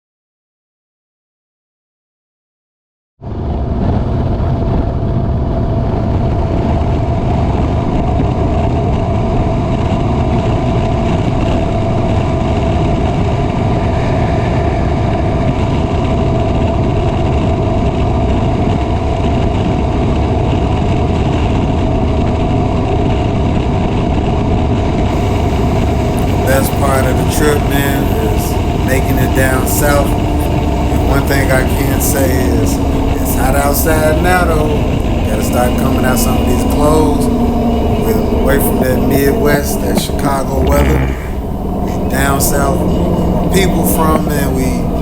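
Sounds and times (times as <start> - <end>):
motorcycle engine rumble: 25.1 - 42.5
road noise: 25.1 - 45.0.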